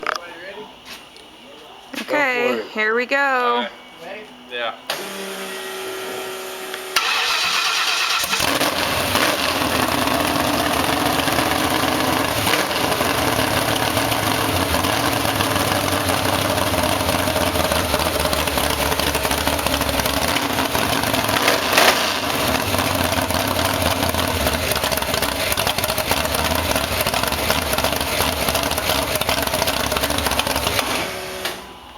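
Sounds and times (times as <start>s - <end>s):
engine running loudly: 7.0s - 31.2s
starter motor cranking: 7.0s - 31.7s.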